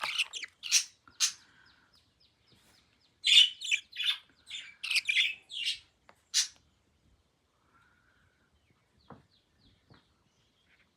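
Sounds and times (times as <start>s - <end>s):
baby budgerigar chirping: 0.0s - 1.4s, 3.2s - 6.6s.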